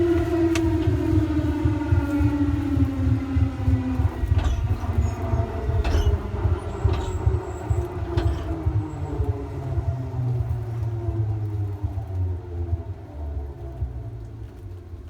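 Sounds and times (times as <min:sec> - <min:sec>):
electric train running: 0:00.0 - 0:11.5
wheels clicking over rail joints: 0:03.2 - 0:10.0.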